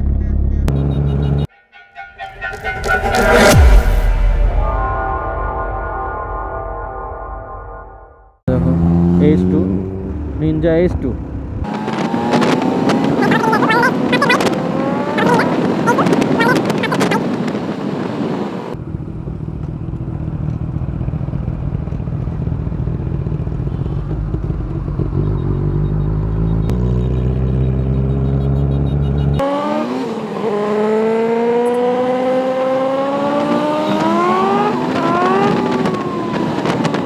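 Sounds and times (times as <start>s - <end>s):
motorcycle engine revving: 8.5s - 37.0s.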